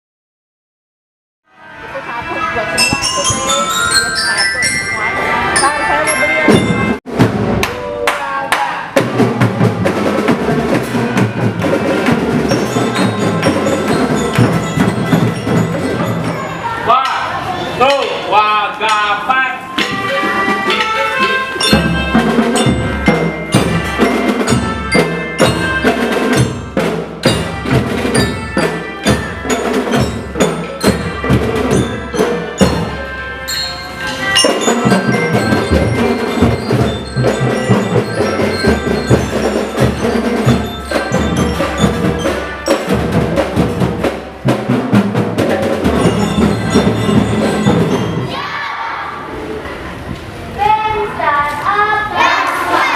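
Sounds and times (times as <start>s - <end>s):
bell-lyra melody: 2.5s - 7.0s, 12.3s - 16.8s, 19.6s - 44.2s, 45.4s - 48.5s
snare and bass drums: 6.5s - 7.9s, 21.7s - 33.0s, 34.4s - 48.3s.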